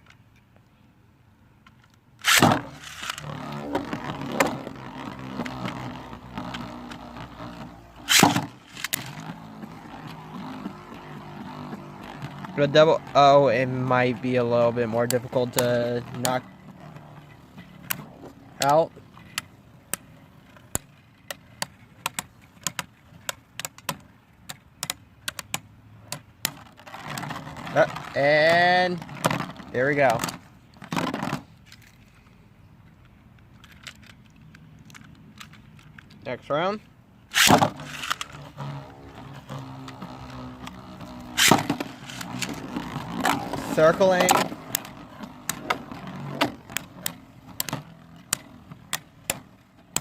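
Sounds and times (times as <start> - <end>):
spinning tops clashing plastic clicks: 2.2 - 3.3, 37.3 - 38.6, 39.5 - 50.0
spinning top launch burst: 2.2 - 11.9, 37.3 - 38.6, 40.5 - 44.6
spinning tops whirring in stadium: 2.2 - 18.9, 37.3 - 50.0.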